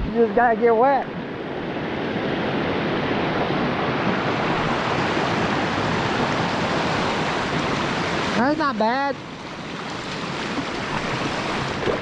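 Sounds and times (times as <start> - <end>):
bike wheels splashing through creek: 9.3 - 12.0.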